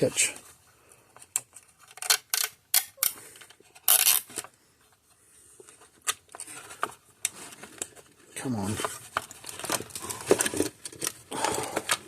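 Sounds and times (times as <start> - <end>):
plastic zip ties clicking: 1.2 - 4.5.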